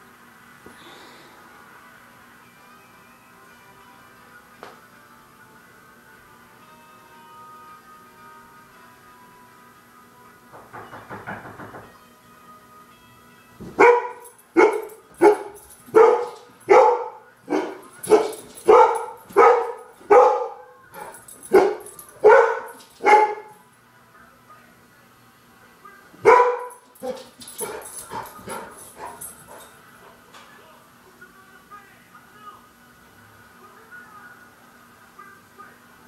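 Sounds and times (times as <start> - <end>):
dog barking: 13.8 - 23.6, 26.2 - 30.2.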